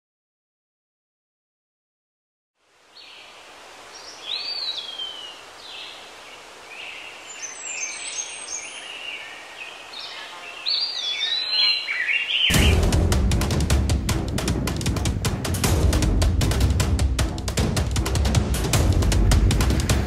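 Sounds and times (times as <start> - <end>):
steady background hiss: 2.6 - 12.5
birds chirping and singing: 4.0 - 12.9.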